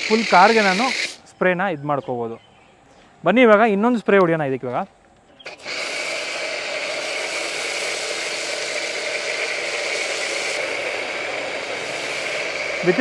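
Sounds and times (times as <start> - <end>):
pressure washer motor whirring: 0.0 - 1.2, 5.5 - 13.0
spray hissing: 0.0 - 1.2, 5.5 - 13.0.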